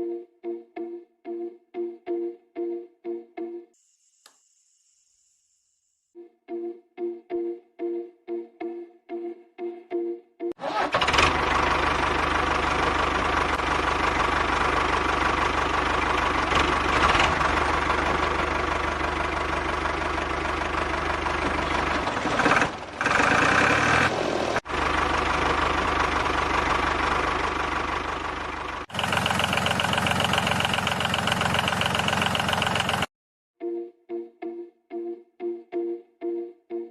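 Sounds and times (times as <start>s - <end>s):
toy diesel engine clattering: 10.6s - 33.1s.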